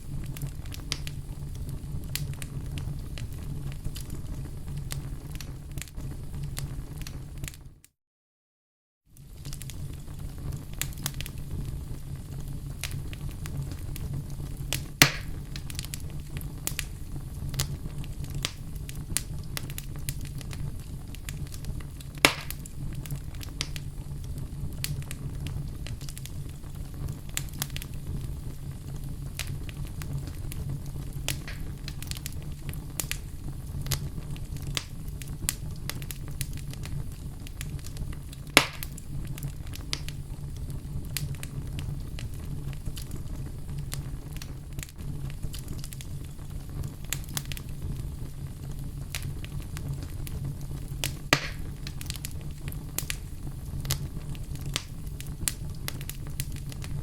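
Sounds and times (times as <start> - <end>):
fireplace fire crackling: 0.0 - 7.9, 9.1 - 57.0.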